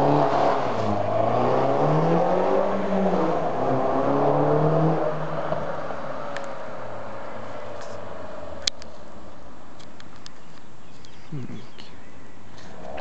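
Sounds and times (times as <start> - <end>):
car engine revving: 0.0 - 8.7.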